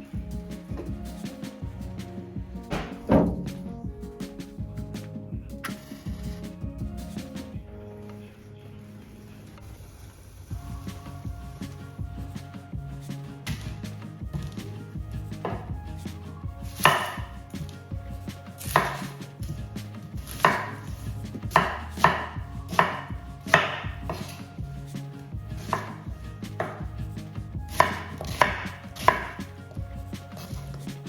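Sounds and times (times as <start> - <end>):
knife chopping on cutting board: 18.7 - 19.1, 20.4 - 20.9, 21.5 - 24.3, 25.6 - 26.0, 27.7 - 29.4.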